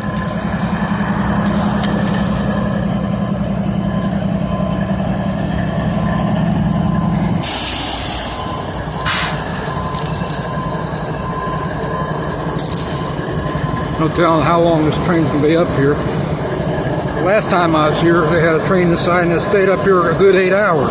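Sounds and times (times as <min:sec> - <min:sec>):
diesel locomotive idling: 0:00.0 - 0:20.9
compressed air hissing: 0:07.4 - 0:09.5.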